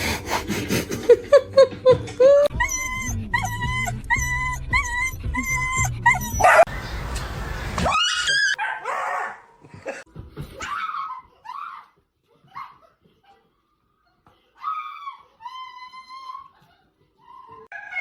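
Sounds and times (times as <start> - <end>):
dog vocalising: 2.5 - 6.7.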